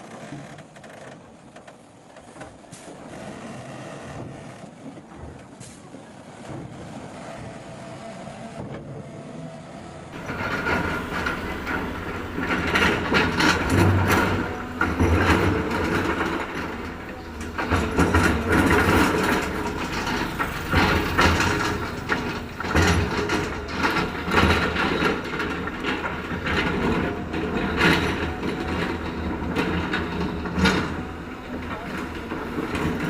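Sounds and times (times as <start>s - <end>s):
diesel engine running: 9.2s - 33.0s
machine clanks and knocks: 10.1s - 33.0s.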